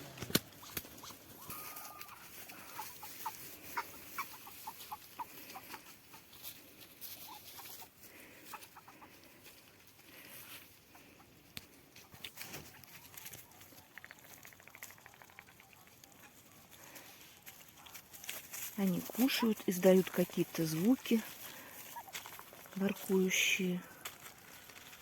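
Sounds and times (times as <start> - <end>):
ducks cooing: 0.5 - 6.3.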